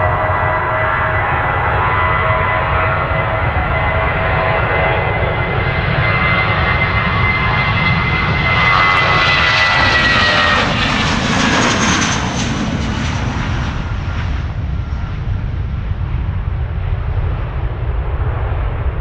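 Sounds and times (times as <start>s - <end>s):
high whine falling in pitch: 0.0s - 6.4s
jet engines roaring: 0.0s - 19.0s.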